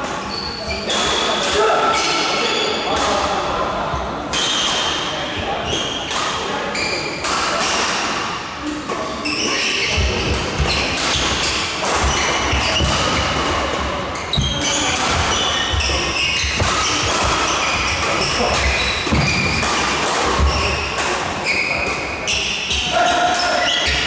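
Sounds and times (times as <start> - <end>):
shoe squeaks on court floor: 6.7 - 7.3, 9.2 - 22.8
racket hitting shuttlecock: 9.8 - 22.8.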